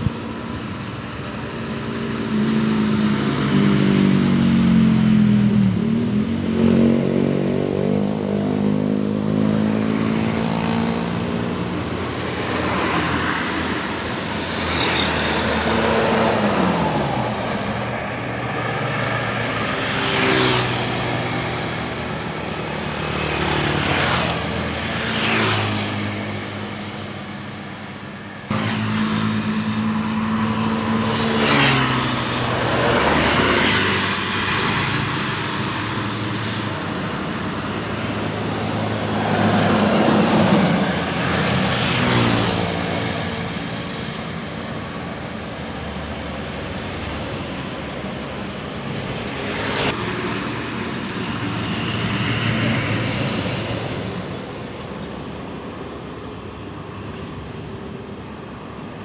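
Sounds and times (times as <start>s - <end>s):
buses passing by: 0.0s - 59.0s.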